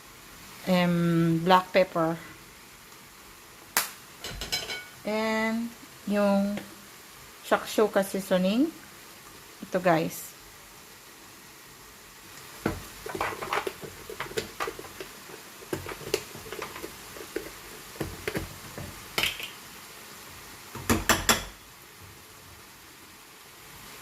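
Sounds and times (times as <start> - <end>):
utensils clinking against pan: 4.2 - 5.0, 19.2 - 19.6.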